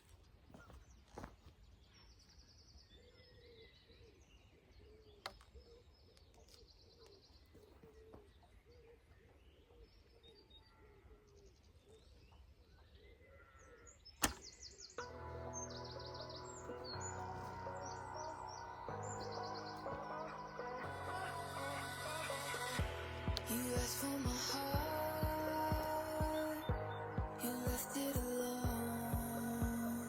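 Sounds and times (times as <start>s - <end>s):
birds chirping and trilling: 0.3s - 30.0s
bow shot snap: 14.2s - 14.6s.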